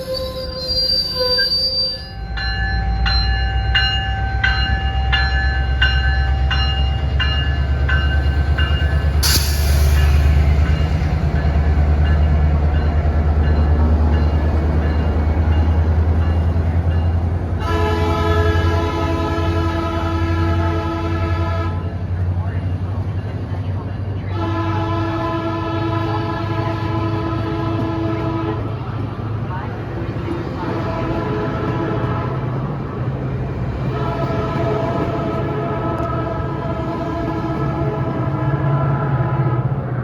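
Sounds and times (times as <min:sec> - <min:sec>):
locomotive air horn: 0:00.0 - 0:02.3, 0:09.2 - 0:10.3, 0:17.6 - 0:21.9, 0:24.3 - 0:28.8
locomotive bell ringing: 0:00.0 - 0:18.0
locomotive engine rumble: 0:00.0 - 0:40.0
air hiss: 0:09.2 - 0:10.4.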